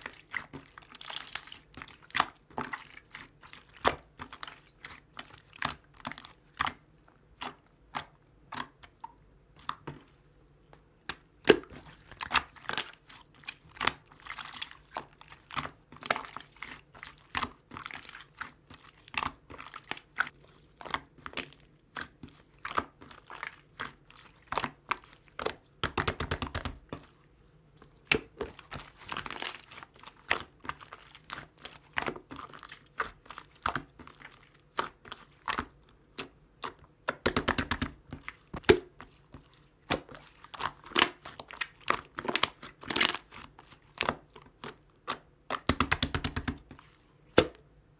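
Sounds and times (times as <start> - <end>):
slime squished by hand: 28.0 - 47.6.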